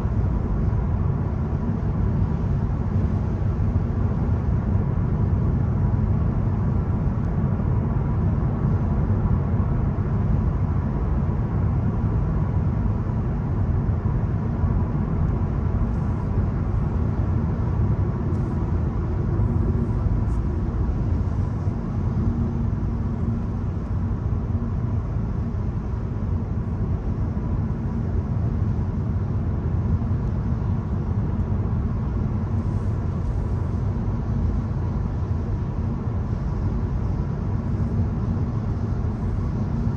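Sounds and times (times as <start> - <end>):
car engine rumble: 14.6 - 27.1.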